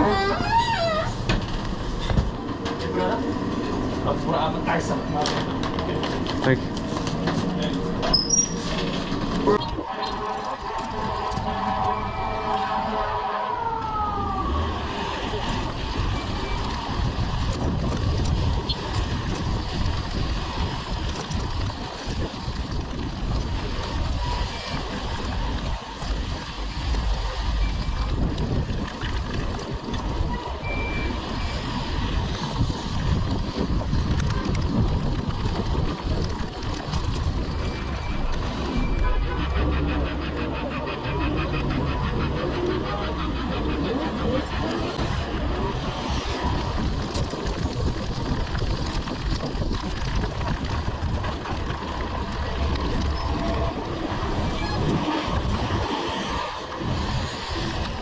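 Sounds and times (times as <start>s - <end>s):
city traffic noise: 0.0s - 58.0s
wind rumble on microphone: 0.0s - 58.0s
emergency vehicle siren: 9.5s - 17.2s
short high beep: 30.6s - 31.6s.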